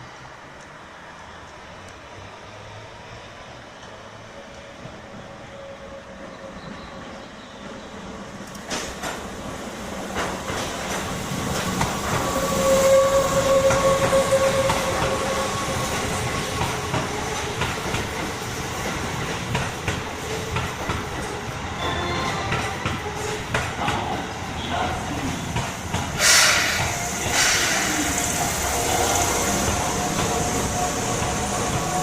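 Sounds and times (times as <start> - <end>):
train whine: 0.0 - 32.0
train wheels clacking on rail joints: 8.4 - 24.4, 25.5 - 32.0.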